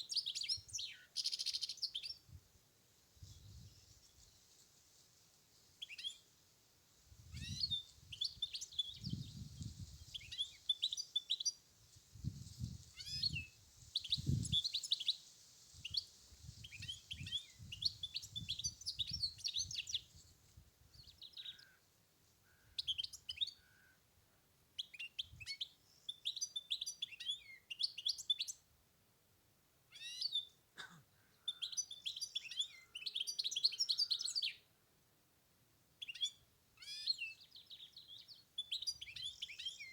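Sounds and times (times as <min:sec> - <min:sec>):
finch singing: 0:36.0 - 0:39.9.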